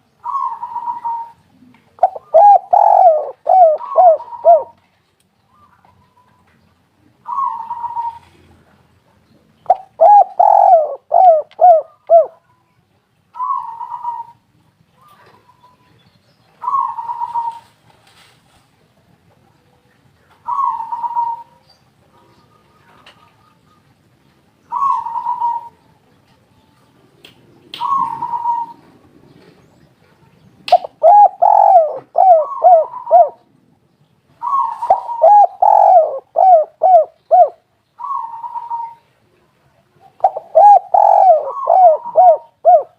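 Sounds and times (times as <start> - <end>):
dove cooing: 0.2 - 4.8, 7.2 - 8.7, 9.7 - 12.4, 13.4 - 14.4, 16.6 - 17.8, 20.4 - 23.8, 24.7 - 25.8, 27.8 - 29.7, 30.7 - 33.5, 34.4 - 39.1, 40.0 - 42.9.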